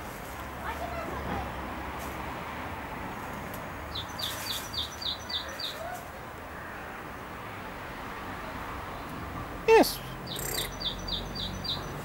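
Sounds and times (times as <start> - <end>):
bird chirping: 3.9 - 5.8, 10.0 - 12.0.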